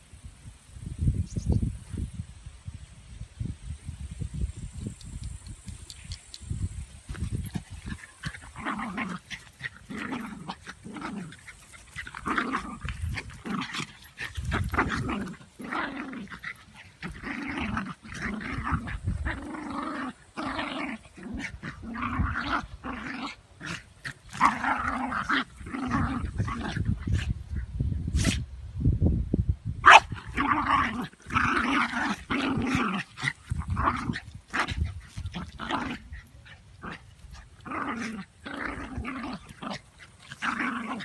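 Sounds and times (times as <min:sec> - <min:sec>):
dog growling: 0:07.4 - 0:27.1, 0:30.2 - 0:41.0.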